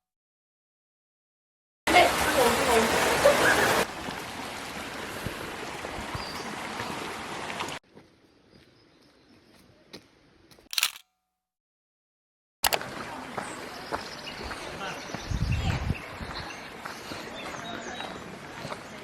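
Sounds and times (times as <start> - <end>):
sharp clatter of clicks: 10.7 - 11.1.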